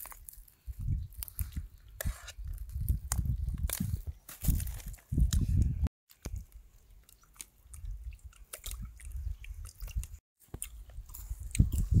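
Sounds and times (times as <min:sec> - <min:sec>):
person chewing and biting: 0:07.1 - 0:12.0.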